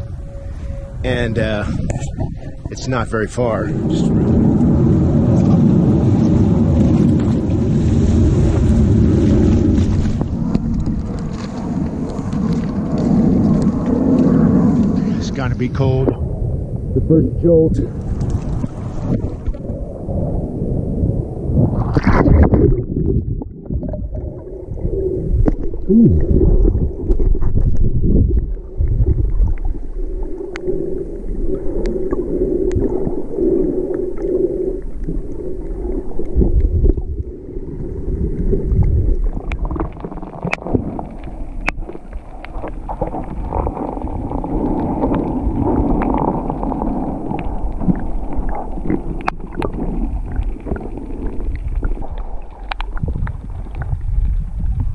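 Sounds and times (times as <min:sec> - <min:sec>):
low underwater rumble: 0:00.0 - 0:54.9
muffled underwater water movement: 0:00.0 - 0:54.9
gurgling bubbles: 0:01.1 - 0:16.5, 0:17.9 - 0:54.9.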